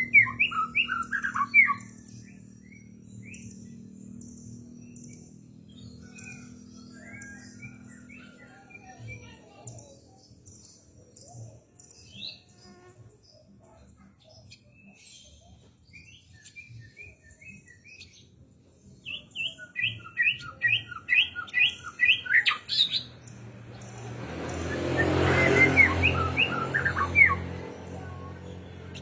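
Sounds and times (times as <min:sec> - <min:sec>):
bird singing whistled notes: 0:00.0 - 0:09.2, 0:19.0 - 0:24.0, 0:24.7 - 0:27.5.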